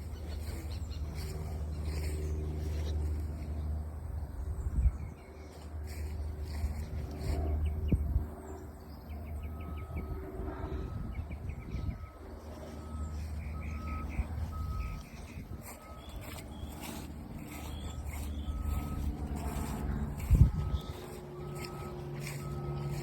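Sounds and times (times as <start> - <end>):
small birds chirping: 0.0 - 3.6, 11.0 - 23.0
steady low rumble: 0.0 - 23.0.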